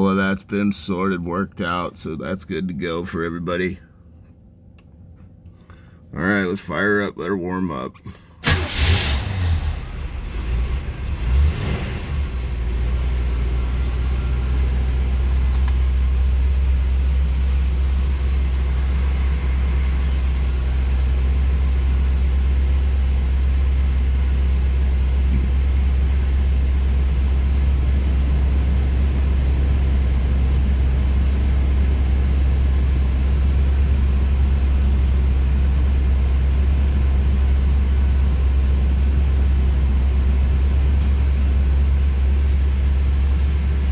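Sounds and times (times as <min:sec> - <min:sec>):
car engine starting and idling: 0:00.0 - 0:43.9
engine revving: 0:08.4 - 0:15.2.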